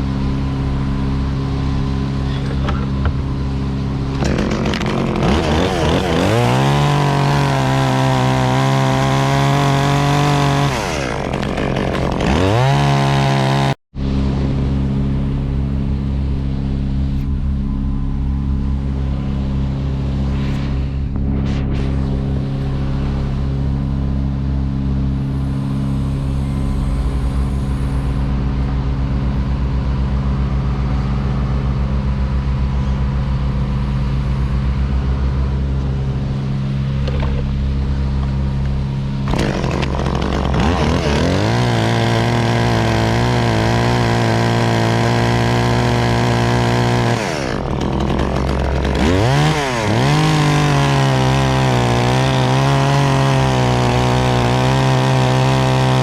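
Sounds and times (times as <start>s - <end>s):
large engine droning: 0.0s - 56.0s
chainsaw revving and cutting: 4.0s - 13.8s, 39.2s - 56.0s.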